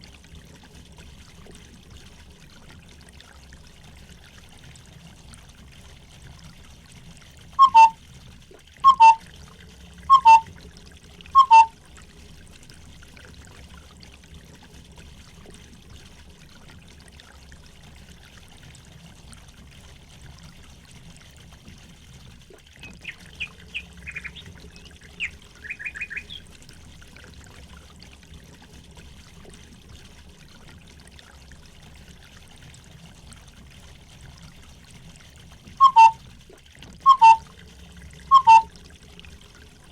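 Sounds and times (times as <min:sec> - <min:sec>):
water trickling: 0:00.0 - 0:39.9
bird two-note call: 0:07.6 - 0:08.0, 0:08.8 - 0:09.2, 0:10.1 - 0:10.5, 0:11.4 - 0:11.7, 0:35.8 - 0:36.2, 0:37.1 - 0:37.4, 0:38.3 - 0:38.7
small bird high chirps: 0:07.6 - 0:08.0, 0:08.9 - 0:09.2, 0:10.1 - 0:10.4, 0:11.4 - 0:11.7, 0:22.9 - 0:26.4, 0:35.8 - 0:36.2, 0:37.1 - 0:37.4, 0:38.3 - 0:38.7.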